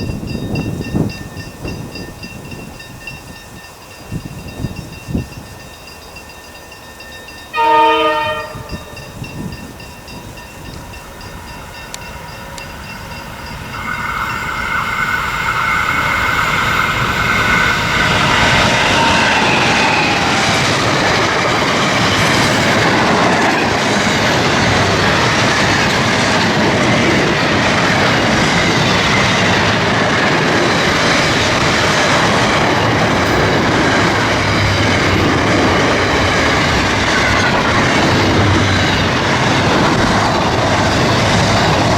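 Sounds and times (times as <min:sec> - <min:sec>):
locomotive whine: 0:00.0 - 0:41.9
train horn blast: 0:07.5 - 0:09.0
wagons clattering on rails: 0:08.4 - 0:41.9.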